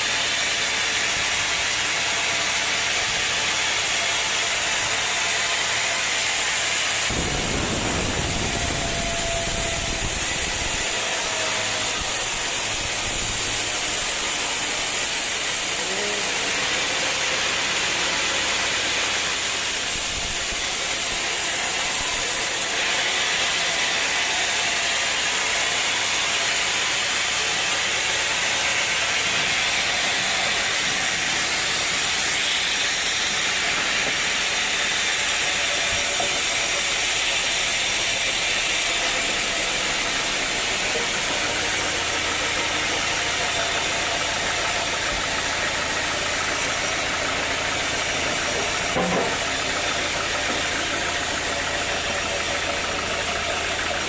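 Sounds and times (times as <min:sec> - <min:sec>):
engine running: 0:00.0 - 0:54.0
loud hiss: 0:00.0 - 0:54.0
low hum: 0:07.1 - 0:11.2.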